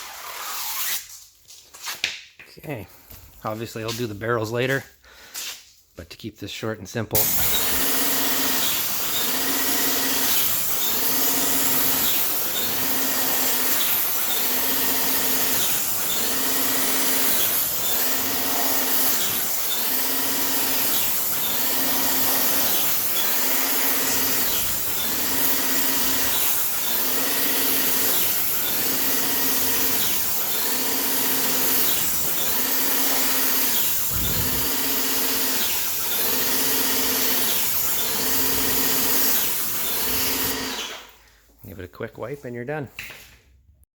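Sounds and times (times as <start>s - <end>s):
paint sprayer hissing: 7.2s - 40.7s
pulsing pump hum: 7.2s - 40.8s.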